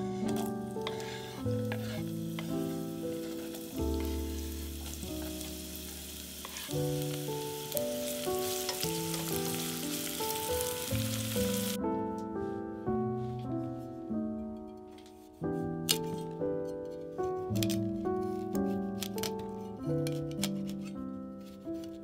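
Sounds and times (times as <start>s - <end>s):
leeks sizzling in oil: 0.0s - 11.8s
background music: 0.0s - 22.0s
spatula stirring in pot: 0.1s - 6.8s.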